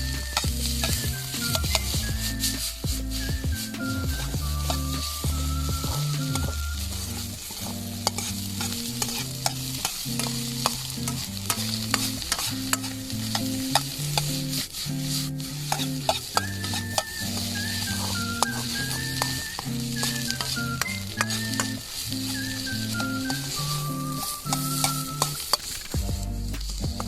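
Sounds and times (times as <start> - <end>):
spatula striking and scraping pan: 0.0 - 20.6
rice sizzling in a pan: 0.0 - 27.0.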